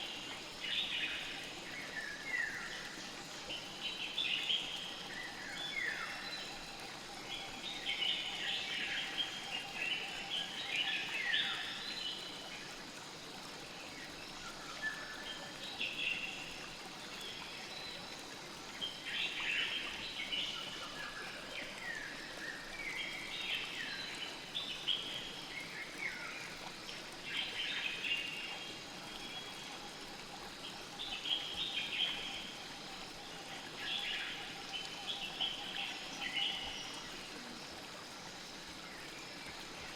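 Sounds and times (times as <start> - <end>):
river flowing: 0.0 - 39.9
songbirds chirping: 0.0 - 39.9.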